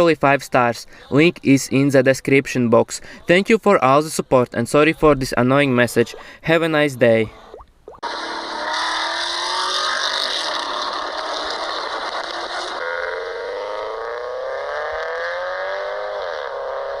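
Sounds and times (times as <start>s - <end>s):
car engine accelerating: 8.0s - 17.0s.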